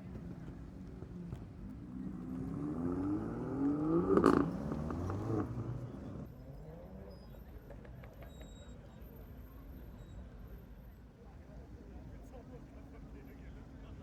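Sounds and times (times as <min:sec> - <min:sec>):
car engine accelerating hard: 0:00.0 - 0:06.9.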